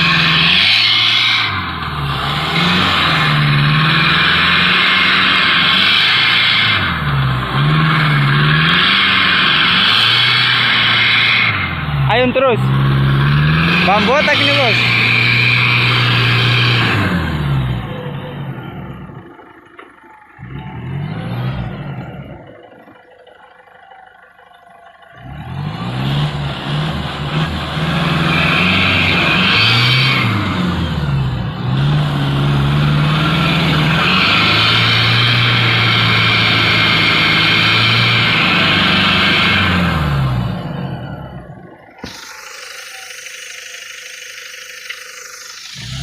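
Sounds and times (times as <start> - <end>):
truck engine revving: 0.0 - 46.0.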